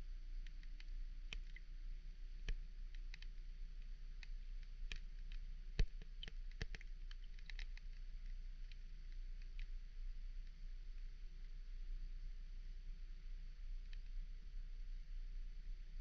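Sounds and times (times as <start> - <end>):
low steady hum: 0.0 - 16.0
underwater clicks and ticks: 0.4 - 1.8, 2.4 - 9.8, 13.8 - 14.2.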